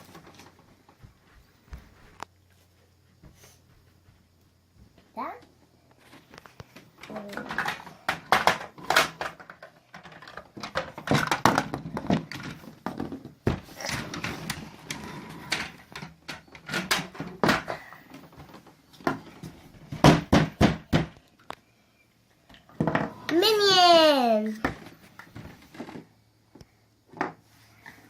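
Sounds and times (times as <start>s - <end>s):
loud sharp knocks: 20.0s - 21.2s.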